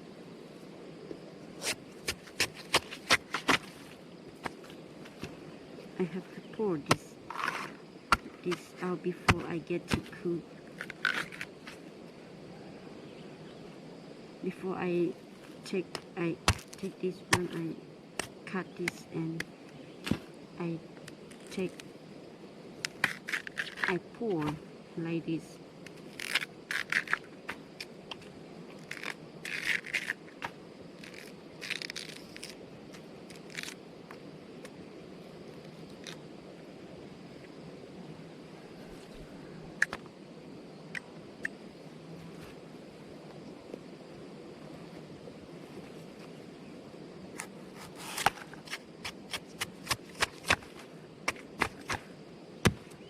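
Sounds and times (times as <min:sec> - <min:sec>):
food scraping and crackling: 0:10.7 - 0:11.6, 0:22.9 - 0:23.9, 0:26.0 - 0:28.2, 0:28.8 - 0:32.6.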